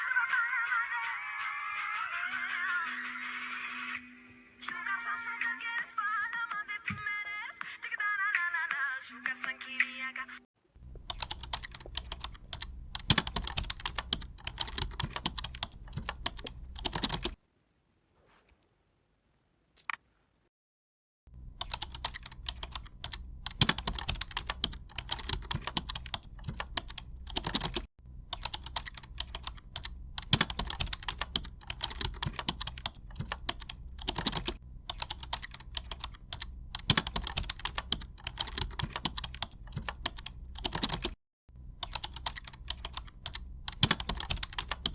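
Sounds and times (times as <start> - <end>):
computer keyboard typing: 10.8 - 17.4, 21.5 - 41.2, 41.8 - 44.9.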